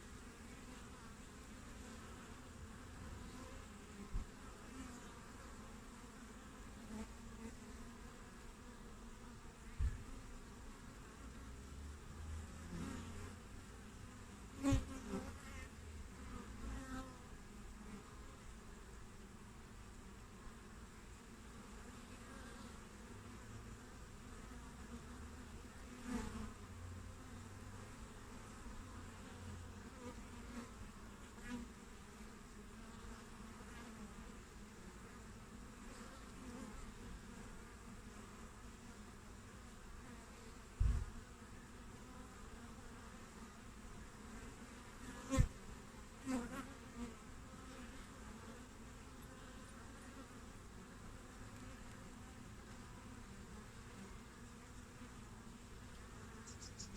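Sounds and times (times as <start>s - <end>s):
bees buzzing close: 0.0s - 56.9s
honeybees humming: 0.0s - 56.9s
low thump: 40.8s - 41.2s.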